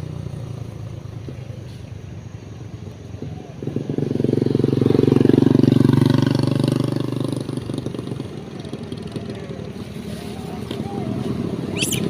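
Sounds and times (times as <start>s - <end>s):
motorcycle passing by: 2.6s - 12.0s
low engine hum: 8.3s - 12.0s.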